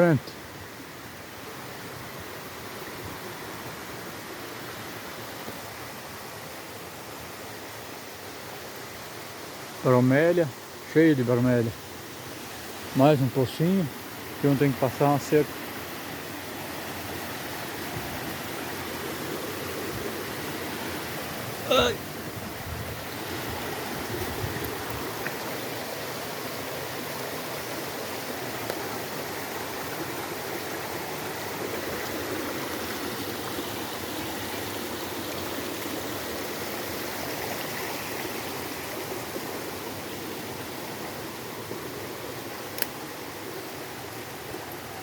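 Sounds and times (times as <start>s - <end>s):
stream flowing: 0.0s - 45.0s
sharp click: 42.7s - 43.0s.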